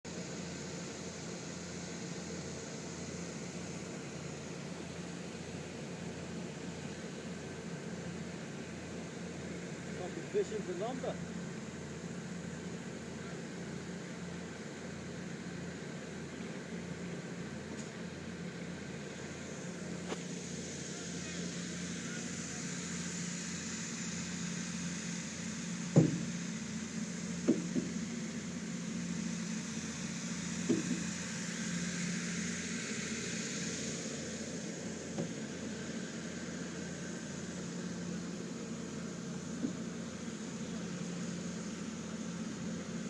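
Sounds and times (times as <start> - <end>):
machinery humming: 0.1 - 43.0
high hiss: 19.2 - 43.0
sharp knocks: 25.9 - 26.4, 27.4 - 28.0, 30.7 - 31.1.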